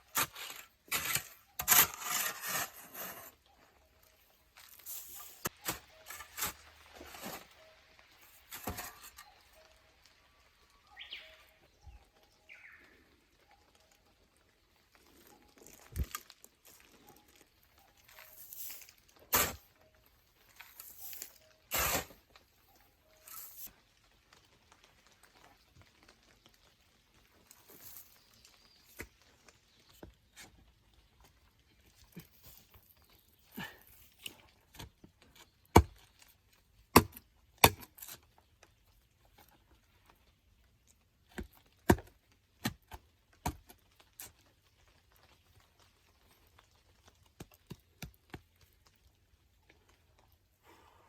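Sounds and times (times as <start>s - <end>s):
hand tools striking soil and stone: 0.0s - 9.5s, 18.0s - 22.4s, 23.1s - 23.7s, 27.4s - 38.3s, 41.3s - 44.4s.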